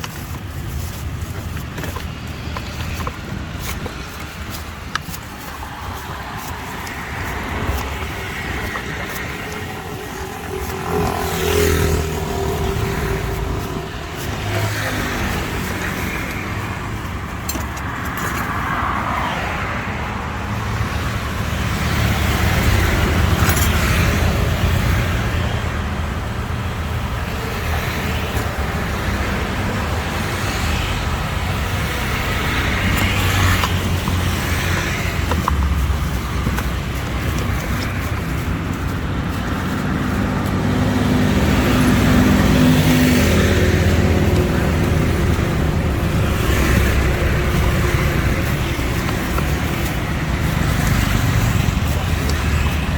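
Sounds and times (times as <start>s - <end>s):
passing road traffic rumble: 0.0s - 52.9s.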